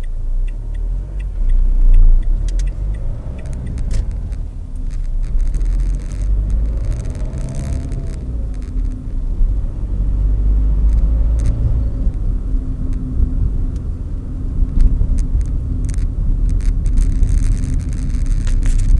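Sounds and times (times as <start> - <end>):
light clicks: 0.0 - 9.0
diesel engine running: 0.0 - 18.9.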